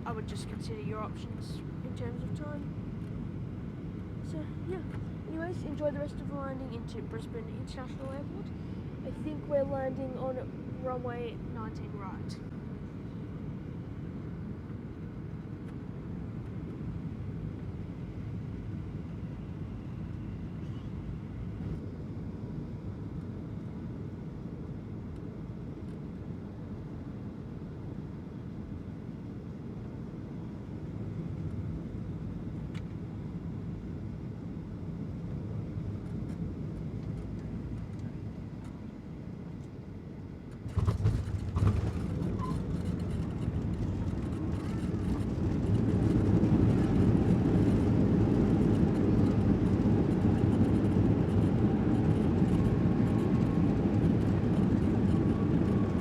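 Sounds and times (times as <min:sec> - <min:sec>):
engine and airflow rumble: 0:00.0 - 0:56.0
wheels touching down on runway: 0:40.5 - 0:56.0.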